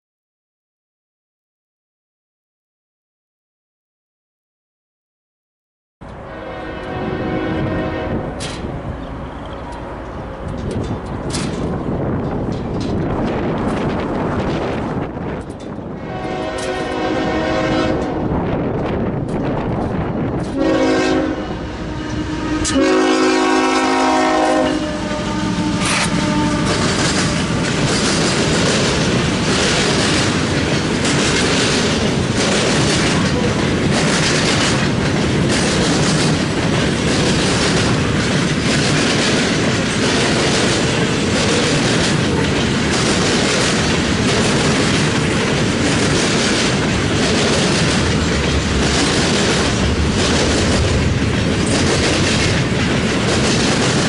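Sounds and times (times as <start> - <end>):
freight train rumbling past: 6.0 - 54.0
train air horn blasts: 6.1 - 8.6, 16.0 - 18.3, 20.6 - 27.8
wheels clacking over rail joints: 8.3 - 17.1, 25.7 - 54.0.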